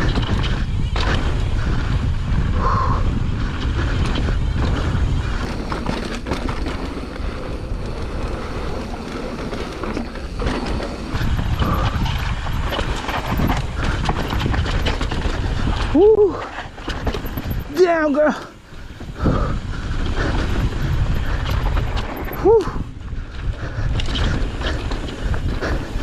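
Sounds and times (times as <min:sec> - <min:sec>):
bike clicking and rattling: 0:00.0 - 0:26.0
wind buffeting microphone: 0:00.0 - 0:26.0
tyres crunching on dirt: 0:05.3 - 0:19.4.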